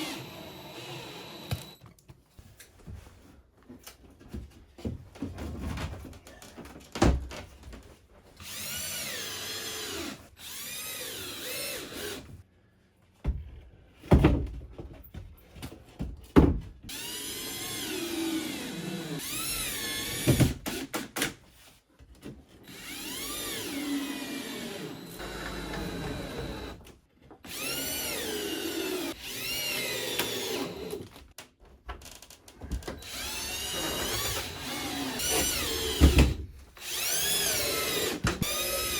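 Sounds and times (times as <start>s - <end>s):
power drill whining: 0.0s - 1.8s, 8.4s - 12.2s, 16.9s - 20.8s, 22.6s - 26.8s, 27.5s - 31.2s, 32.9s - 38.9s.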